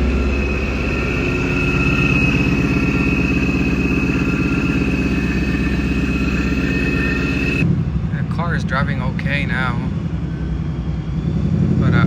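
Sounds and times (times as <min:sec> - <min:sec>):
car engine running: 0:00.0 - 0:07.6
high supercharger whine: 0:00.0 - 0:07.8.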